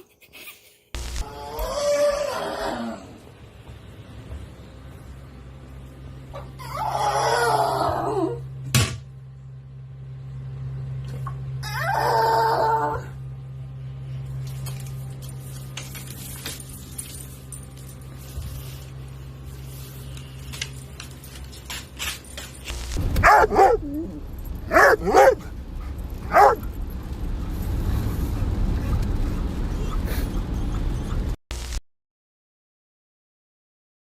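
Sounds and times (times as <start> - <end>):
low steady hum: 0.0 - 31.8
dog barking: 23.2 - 24.1, 24.7 - 25.5, 26.2 - 26.7.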